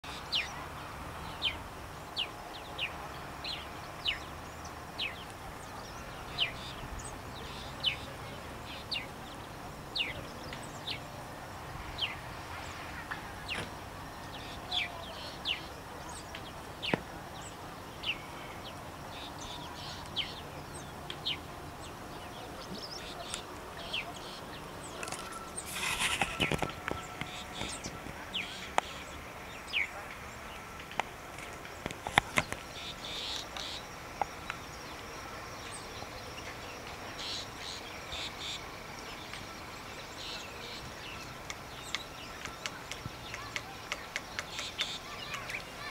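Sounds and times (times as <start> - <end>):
birds chirping: 0.0 - 45.9.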